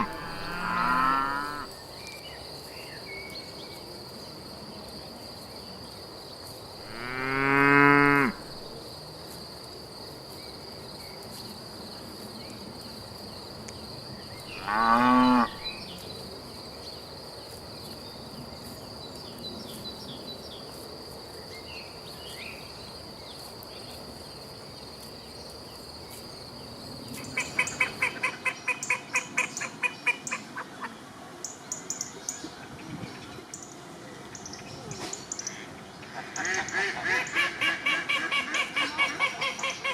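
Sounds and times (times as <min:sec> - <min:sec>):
cattle mooing: 0:00.0 - 0:01.7, 0:06.9 - 0:08.6, 0:14.6 - 0:15.7
ducks quacking: 0:00.0 - 0:01.7
crickets chirring: 0:00.0 - 0:32.4.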